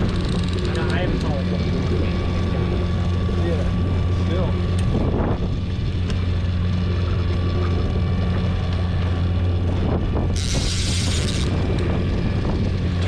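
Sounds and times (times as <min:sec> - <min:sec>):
fishing reel drag buzzing: 0:00.0 - 0:01.4, 0:10.2 - 0:12.0
boat engine running: 0:00.0 - 0:13.0.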